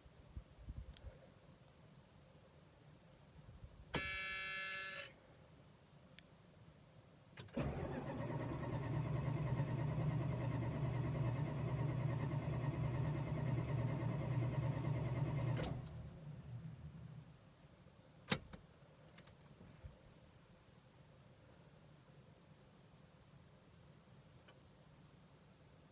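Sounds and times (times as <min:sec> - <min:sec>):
starter motor cranking engine: 0:07.5 - 0:16.0.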